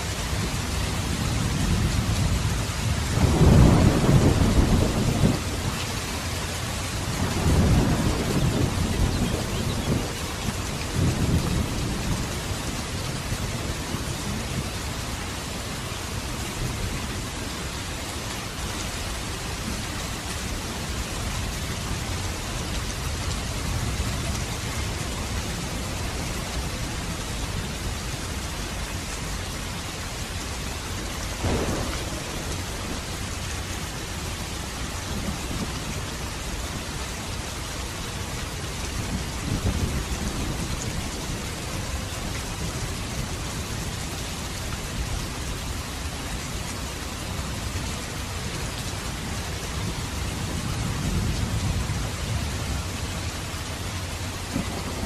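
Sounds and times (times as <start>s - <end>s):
steady rain falling: 0.0s - 55.0s
low thunder rumbling: 0.2s - 15.0s, 31.3s - 36.7s, 38.2s - 45.7s, 49.1s - 55.0s
sharp thunder crack: 31.4s - 33.2s.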